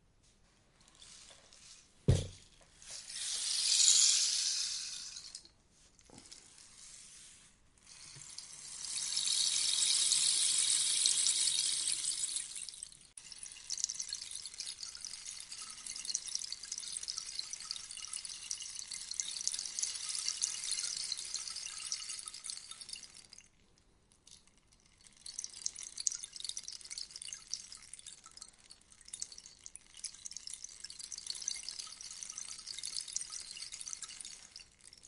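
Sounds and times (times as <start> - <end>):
rainstick patter: 7.8 - 35.0.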